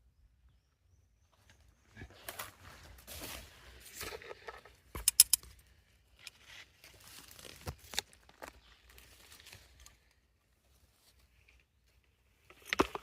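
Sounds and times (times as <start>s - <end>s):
sharp clicks: 5.0s - 5.5s
rustling and crinkling handling: 6.3s - 13.0s.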